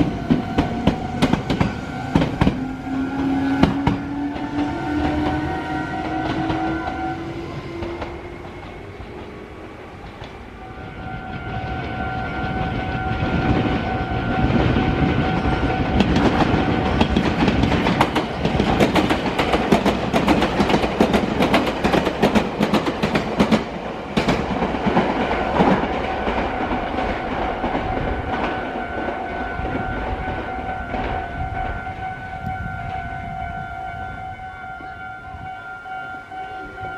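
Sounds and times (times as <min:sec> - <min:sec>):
steady high tone: 0:00.0 - 0:17.1, 0:25.2 - 0:36.9
electric train rumbling past: 0:00.0 - 0:36.9
wheels clattering over rail joints: 0:13.4 - 0:29.1.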